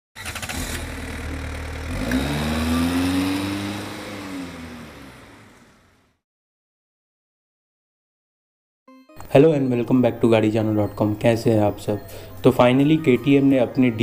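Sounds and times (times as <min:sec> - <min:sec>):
car engine revving: 0:00.2 - 0:06.2.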